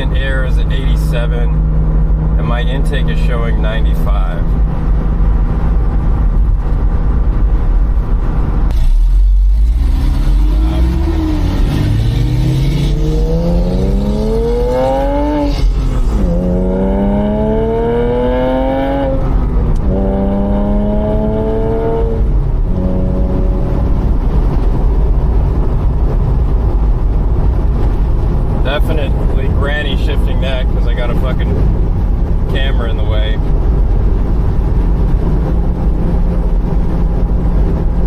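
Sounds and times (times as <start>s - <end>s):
car engine accelerating through gears: 4.4s - 29.7s.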